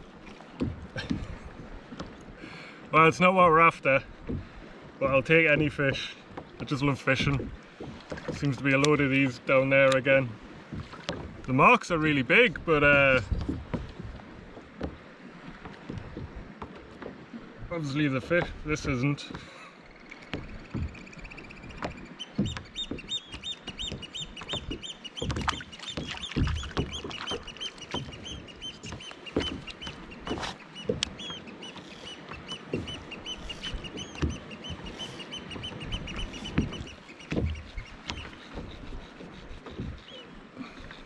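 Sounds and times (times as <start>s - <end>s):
water slapping against kayak: 0.0s - 41.0s
low knocks: 20.3s - 31.4s, 32.3s - 38.8s.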